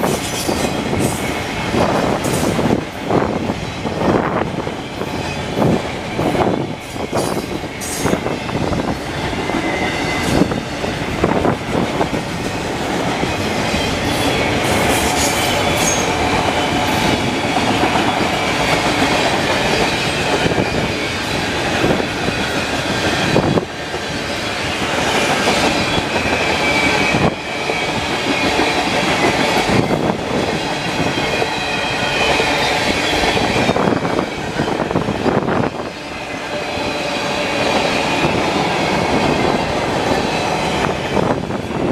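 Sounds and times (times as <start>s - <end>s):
freight train rumbling: 0.0s - 41.9s
wind buffeting microphone: 0.0s - 41.9s
high wheel squeal: 13.8s - 17.1s, 25.4s - 29.9s.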